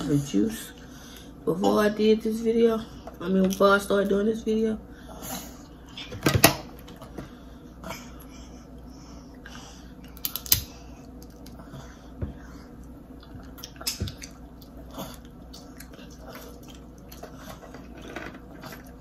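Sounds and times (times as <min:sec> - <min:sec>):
chewing and wet smacking: 0:08.8 - 0:19.0.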